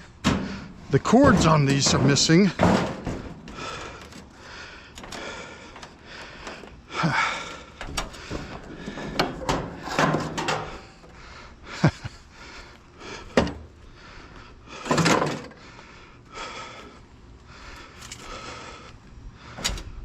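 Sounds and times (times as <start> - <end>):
sheet metal appliance clattering: 0.2 - 4.3, 7.8 - 11.0.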